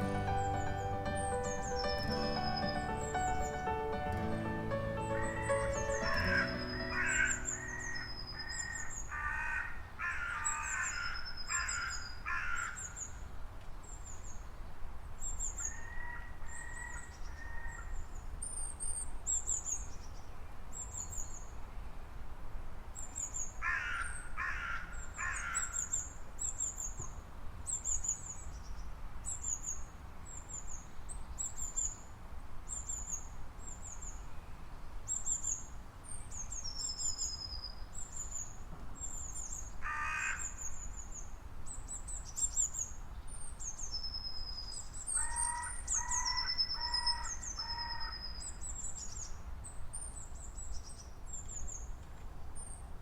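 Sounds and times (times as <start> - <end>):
bird chirping: 0.0 - 9.2
harsh cawing calls: 6.0 - 12.8, 23.6 - 25.8, 39.8 - 40.6.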